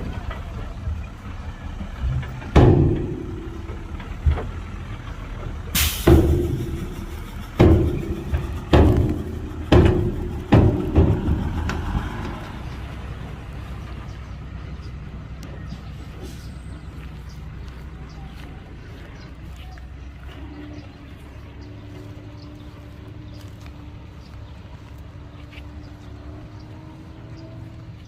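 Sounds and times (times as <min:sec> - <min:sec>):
heavy diesel machinery running: 0:00.0 - 0:28.0
loud metallic bangs: 0:02.0 - 0:13.5
sharp hiss: 0:05.8 - 0:08.6.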